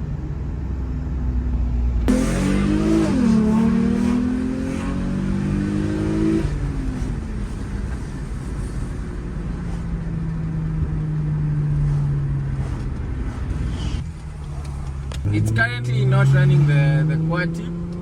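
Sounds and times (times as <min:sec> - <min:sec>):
car engine revving: 0:01.8 - 0:18.0.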